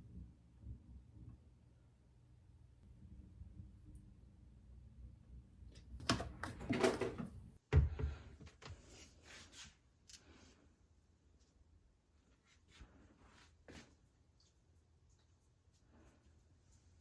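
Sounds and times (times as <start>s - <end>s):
objects rustling and clattering: 6.0s - 9.7s.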